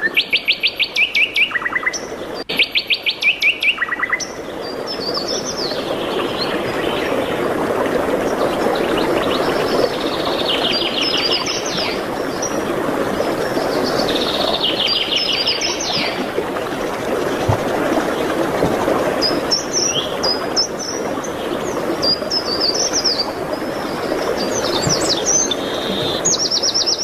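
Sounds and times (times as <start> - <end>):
songbirds singing: 0.0 - 7.4, 8.3 - 17.5, 19.1 - 27.0.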